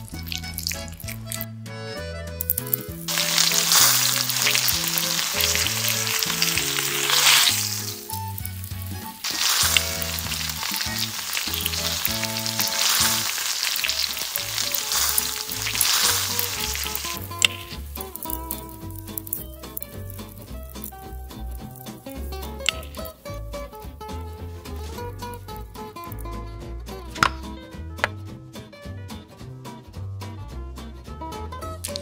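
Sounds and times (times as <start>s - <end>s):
batter sizzling in a wok: 0.0s - 1.4s, 2.4s - 23.2s.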